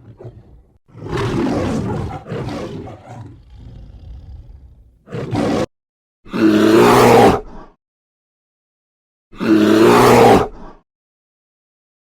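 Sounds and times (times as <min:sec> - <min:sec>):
large animal roaring: 0:00.0 - 0:05.7, 0:09.4 - 0:10.8.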